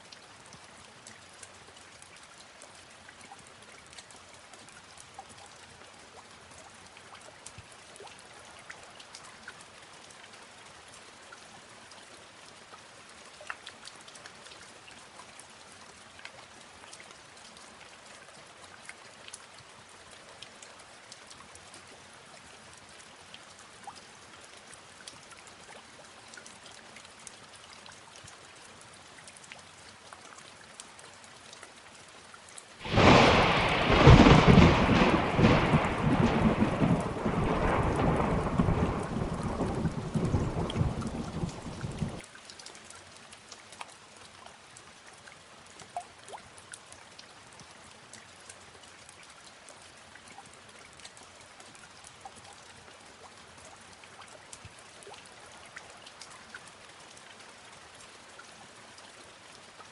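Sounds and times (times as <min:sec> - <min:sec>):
light rain: 0:00.0 - 0:59.9
thunder crack: 0:32.8 - 0:42.2.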